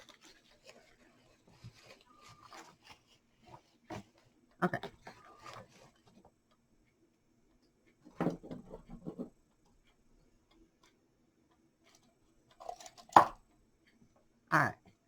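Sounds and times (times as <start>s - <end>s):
flower stems rustling and knocking: 0.0s - 6.2s.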